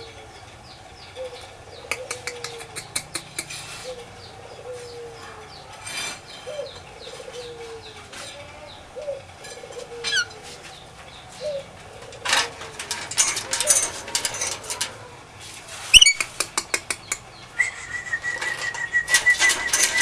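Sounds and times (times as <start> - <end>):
high bird chirps: 15.9 - 16.4
low whistled bird call: 17.5 - 20.0
wings flapping: 18.0 - 20.0.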